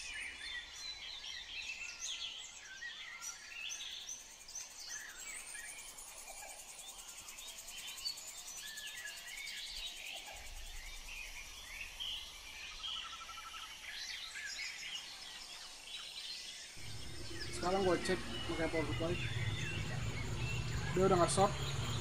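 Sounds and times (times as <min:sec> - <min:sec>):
birds chirping: 0:00.0 - 0:22.0
faint low hum: 0:16.8 - 0:22.0.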